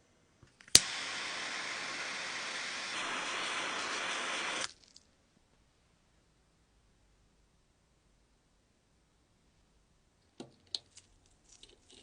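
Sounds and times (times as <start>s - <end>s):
spray hissing: 0.7s - 4.7s.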